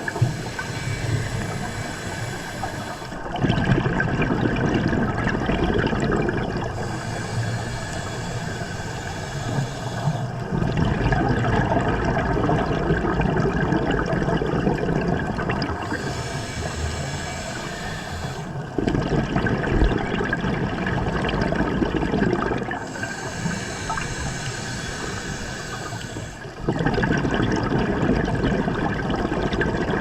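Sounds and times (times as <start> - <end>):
regulator breathing hiss: 0.0 - 3.4, 6.7 - 10.5, 15.6 - 18.8, 22.8 - 26.6
gurgling exhaust bubbles: 0.0 - 30.0.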